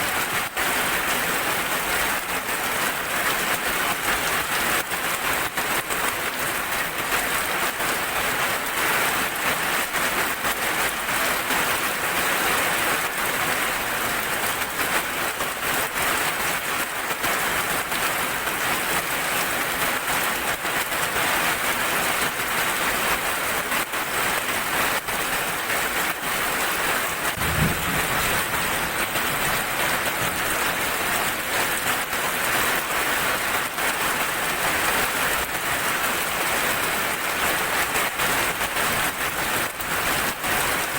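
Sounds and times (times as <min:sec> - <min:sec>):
heavy rain falling: 0:00.0 - 0:40.9
low thump: 0:27.4 - 0:29.8.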